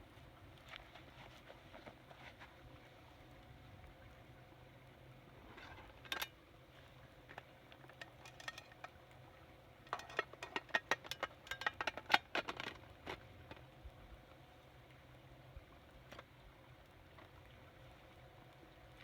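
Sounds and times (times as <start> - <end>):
metal cookware clinking: 6.0 - 6.3, 7.9 - 8.9, 9.9 - 12.2.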